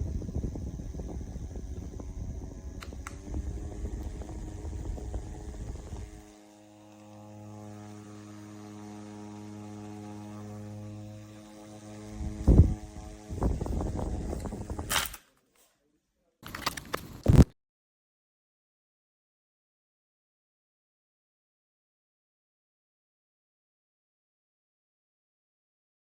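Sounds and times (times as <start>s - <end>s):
handheld fan humming: 0.0s - 15.2s
handling clicks: 16.4s - 17.5s.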